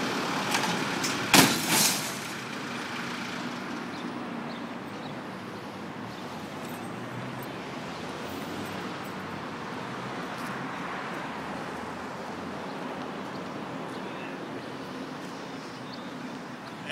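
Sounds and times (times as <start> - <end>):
tractor diesel engine running: 0.0 - 5.0
outdoor noise: 0.0 - 16.9.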